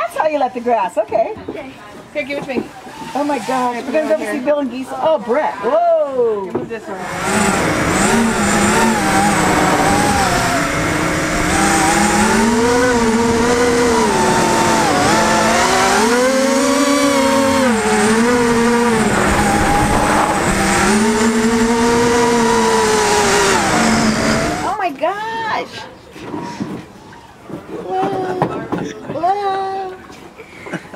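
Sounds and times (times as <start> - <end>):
quadcopter motors whining: 6.9 - 24.8.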